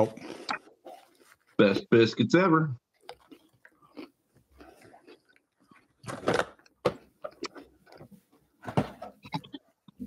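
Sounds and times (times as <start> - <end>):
person chewing: 0.0 - 1.6, 2.8 - 8.3.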